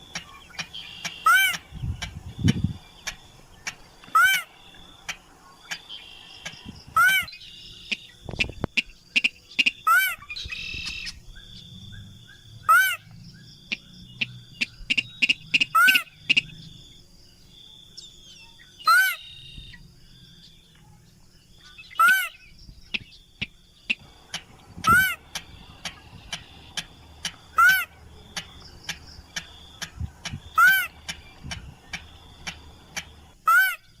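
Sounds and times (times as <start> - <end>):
rail bird calling: 0.0 - 17.0, 18.0 - 19.9, 21.6 - 34.0
scattered ticks: 6.4 - 6.6, 22.9 - 27.6, 28.2 - 33.4.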